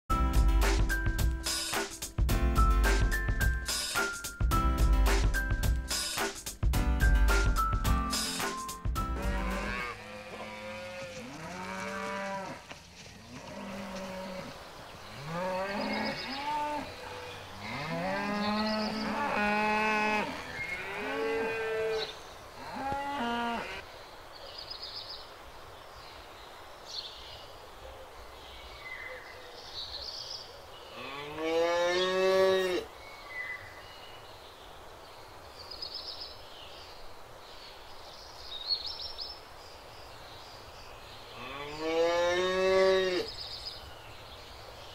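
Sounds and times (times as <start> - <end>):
cattle mooing: 9.2 - 12.6, 15.2 - 23.8.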